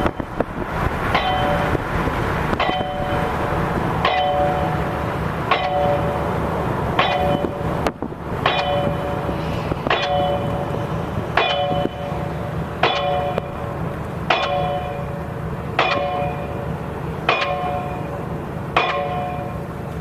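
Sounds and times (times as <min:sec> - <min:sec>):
low rumble: 0:00.0 - 0:16.6
pile driver metallic clang: 0:09.8 - 0:10.6.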